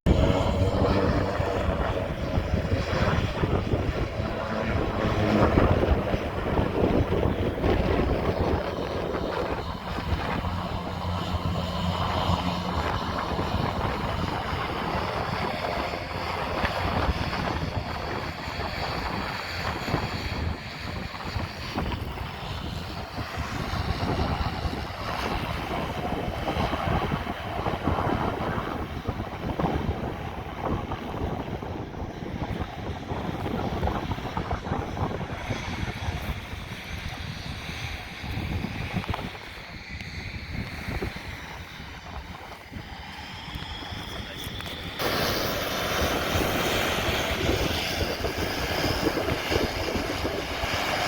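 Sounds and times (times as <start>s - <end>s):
propeller airplane engine droning: 0.0s - 51.0s
wind buffeting microphone: 0.0s - 51.0s.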